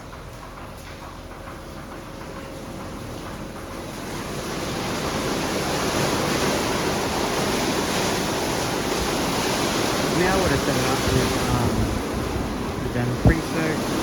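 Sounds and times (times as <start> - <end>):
spinning wash brushes: 0.0 - 14.0
water spray rushing: 3.9 - 14.0.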